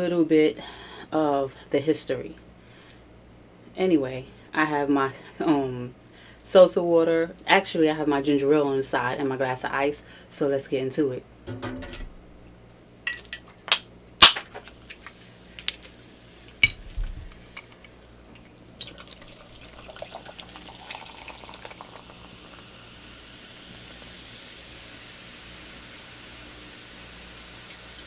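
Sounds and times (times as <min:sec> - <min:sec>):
ice clinking in glass: 0:16.6 - 0:16.9, 0:18.8 - 0:22.6
soda pouring and fizzing: 0:18.4 - 0:28.0.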